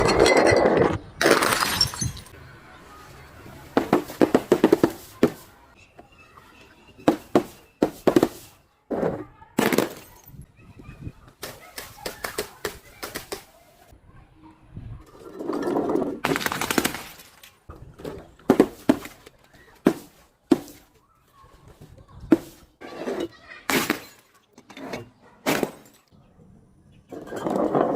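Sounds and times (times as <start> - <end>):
glass bottles crushed and breaking: 0.0 - 2.4, 23.6 - 24.7.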